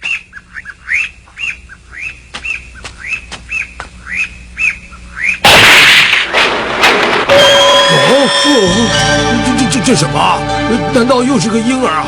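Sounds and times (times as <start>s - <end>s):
loud burst of noise: 5.4s - 7.6s.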